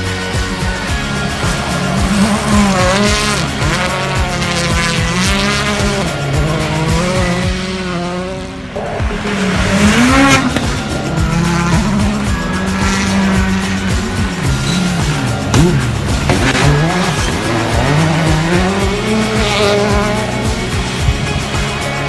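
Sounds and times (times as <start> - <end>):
race car engines revving: 0.0 - 22.0
tyres squealing: 8.8 - 21.2.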